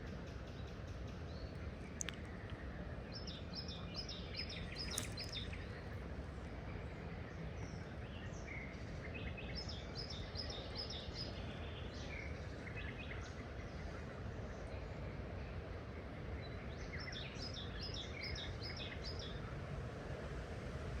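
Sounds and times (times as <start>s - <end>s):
songbirds chirping: 0.0s - 20.9s
flowing water: 1.6s - 6.6s.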